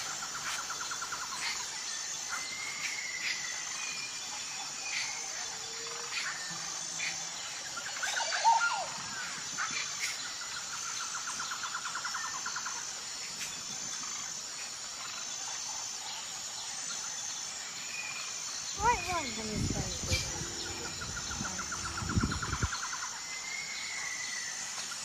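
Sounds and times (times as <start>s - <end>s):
insect chorus: 0.0s - 25.0s
birds chirping: 18.0s - 23.9s
bird trilling: 18.8s - 22.7s.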